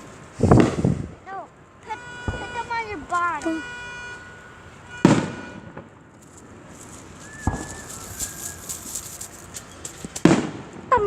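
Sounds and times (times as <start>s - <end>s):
faint crackling: 0.0s - 10.6s
fireworks bursting: 0.0s - 11.0s
thin firework whistle: 7.0s - 10.1s.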